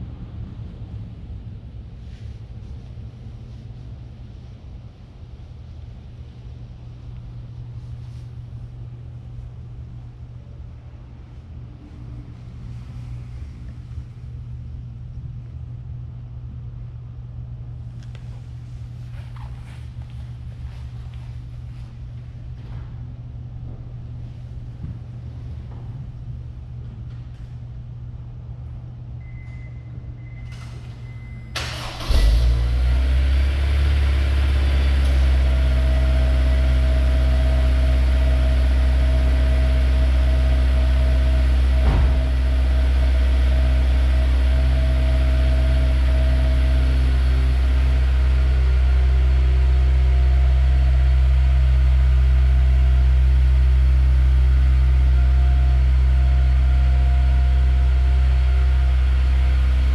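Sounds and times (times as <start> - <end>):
car engine starting and idling: 30.4 - 59.9.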